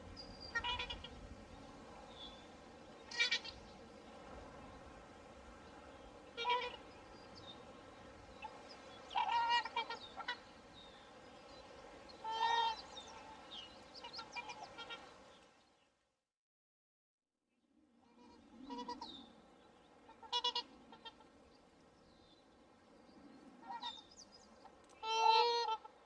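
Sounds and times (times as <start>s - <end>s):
swans honking: 0.0s - 1.2s, 3.0s - 3.6s, 6.1s - 7.7s, 8.4s - 10.7s, 12.2s - 15.2s, 20.0s - 21.3s, 25.0s - 26.0s
steady background hiss: 0.0s - 15.8s, 17.8s - 26.0s.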